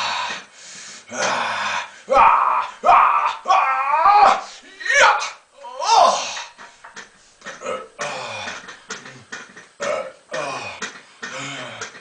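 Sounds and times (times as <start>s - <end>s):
man grunting: 1.1s - 6.5s, 9.8s - 12.0s.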